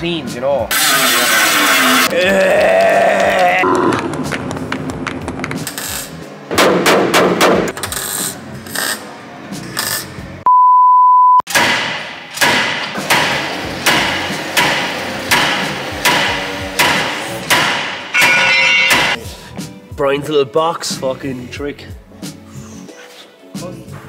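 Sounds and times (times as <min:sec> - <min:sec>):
hammer on sheet metal: 0:11.5 - 0:19.2
steady beep tone: 0:18.2 - 0:19.2.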